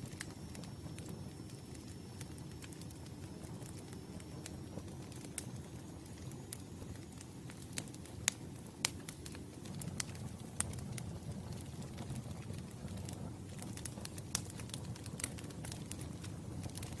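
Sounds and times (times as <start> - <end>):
burning wood popping: 0.0 - 17.0
low rumble of flames: 0.0 - 17.0.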